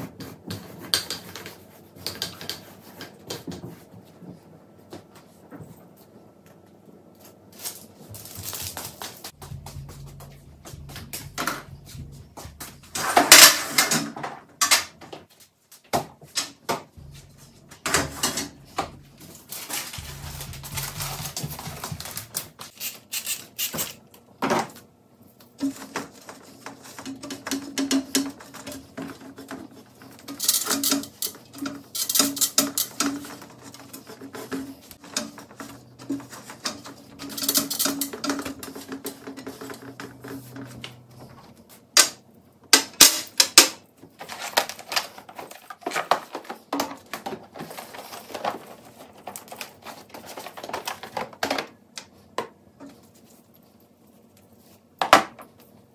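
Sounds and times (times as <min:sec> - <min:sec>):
low steady hum: 0:07.6 - 0:13.7, 0:17.0 - 0:22.7
dishes and utensils clattering: 0:25.6 - 0:41.4.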